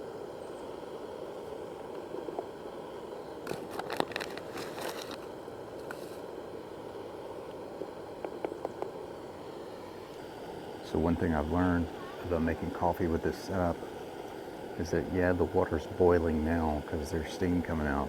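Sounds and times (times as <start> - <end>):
camping stove hissing: 0.0 - 18.0
crinkling handling noise: 3.4 - 6.3.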